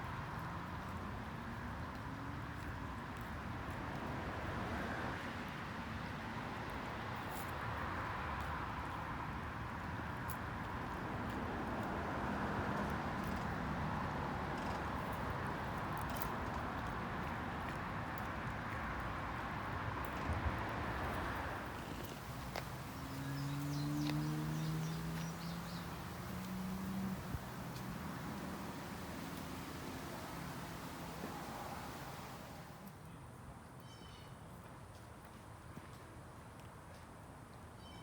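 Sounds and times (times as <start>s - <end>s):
distant traffic: 0.7s - 33.1s
faint rising engine tone: 21.5s - 32.9s.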